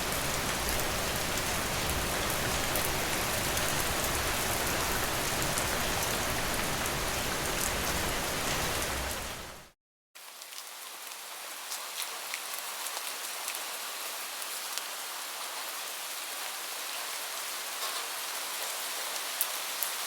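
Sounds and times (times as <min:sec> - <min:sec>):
ticks of raindrops: 0:00.0 - 0:09.7
steady rain: 0:00.0 - 0:20.0.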